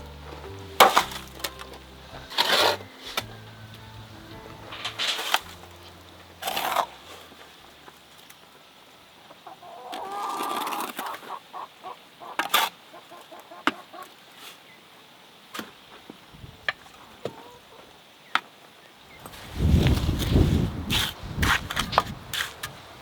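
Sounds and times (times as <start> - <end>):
chicken clucking: 9.2 - 14.3, 17.2 - 17.9.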